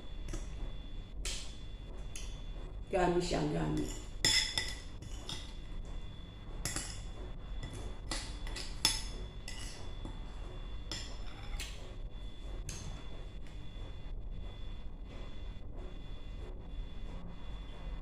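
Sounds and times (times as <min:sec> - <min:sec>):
tableware clinking: 0:03.8 - 0:05.7, 0:06.6 - 0:11.8.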